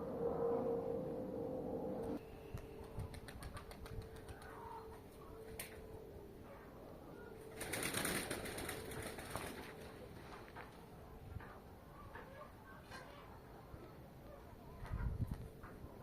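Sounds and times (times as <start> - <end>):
pigeon wings clapping: 2.6 - 4.8, 7.5 - 9.9
rush of wingbeats: 2.6 - 5.8, 7.5 - 9.9.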